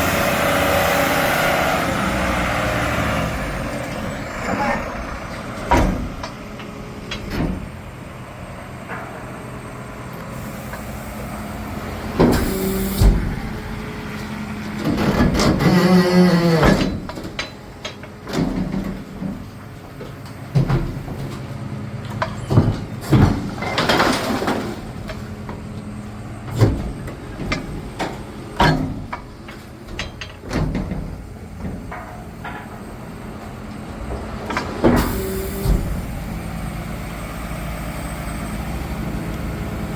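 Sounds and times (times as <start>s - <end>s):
garbage truck diesel engine: 0.0s - 39.9s
refuse body clanks and knocks: 4.4s - 8.0s, 14.2s - 25.6s, 26.4s - 33.0s.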